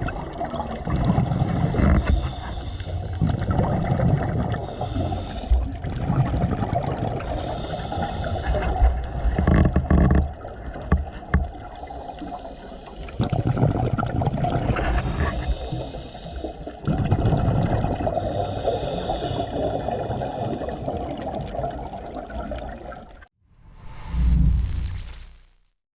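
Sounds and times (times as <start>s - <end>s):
bubbles gurgling: 0.0s - 16.0s, 16.7s - 23.3s
diver breathing through regulator: 1.0s - 5.9s, 7.2s - 10.0s, 11.6s - 13.6s, 14.6s - 17.0s, 18.0s - 21.0s
low whoosh: 23.5s - 25.7s.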